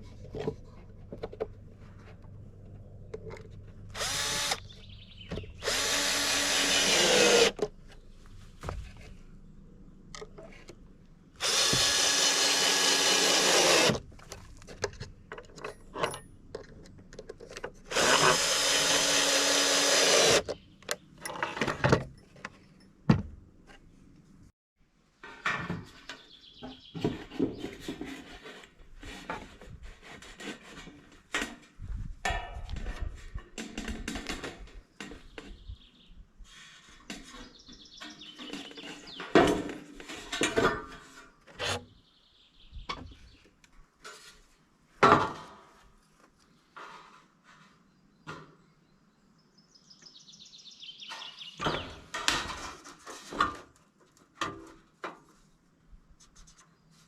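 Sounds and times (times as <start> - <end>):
knocks and handling sounds: 0.0 - 5.8, 7.4 - 11.3, 14.0 - 17.9
power drill running: 4.0 - 4.6, 5.6 - 7.6, 11.4 - 14.0, 17.9 - 20.5.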